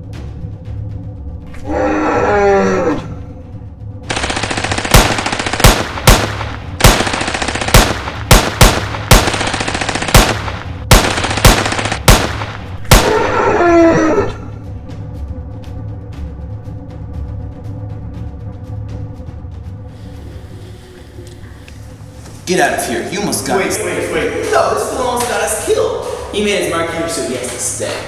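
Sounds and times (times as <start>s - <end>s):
monster roaring: 1.6s - 3.3s, 13.0s - 14.6s
rapid gunshots: 4.1s - 13.4s.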